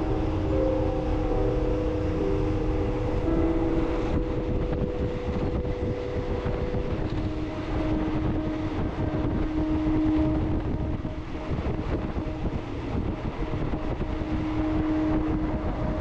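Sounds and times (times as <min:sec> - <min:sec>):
droning hum: 0:00.0 - 0:16.0
train rumble: 0:00.0 - 0:16.0
wind rushing in: 0:00.0 - 0:16.0.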